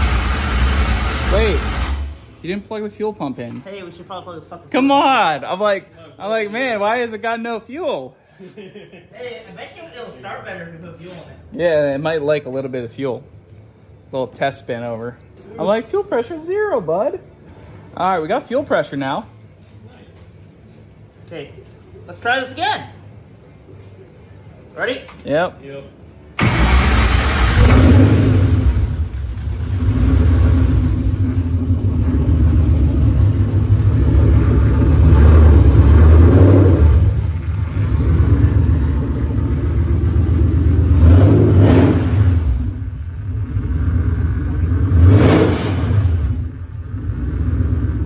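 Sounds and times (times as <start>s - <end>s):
engine throttle blips: 0.0s - 2.5s, 26.4s - 48.0s
engine starting and running: 0.0s - 2.7s, 26.4s - 48.0s.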